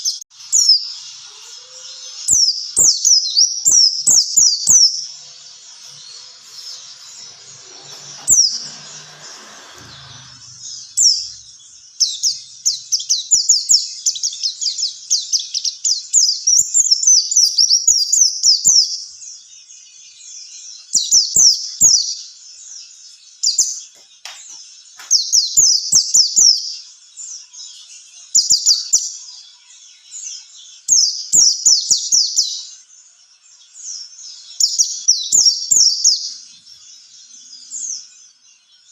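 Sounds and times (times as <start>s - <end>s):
bird chirping rapidly: 0.0s - 19.4s.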